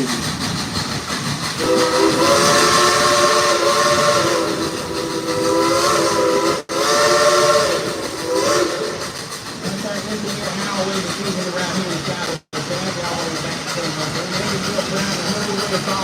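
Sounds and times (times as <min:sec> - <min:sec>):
train running noise and hiss: 0:00.0 - 0:16.0
steam locomotive whistle blasts: 0:01.6 - 0:09.2.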